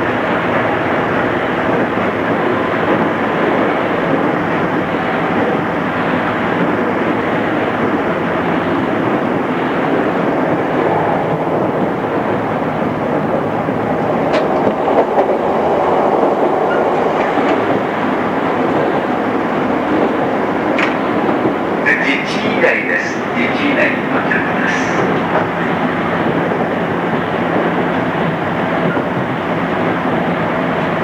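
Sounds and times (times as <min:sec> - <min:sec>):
train wheels rumbling: 0:00.0 - 0:31.0.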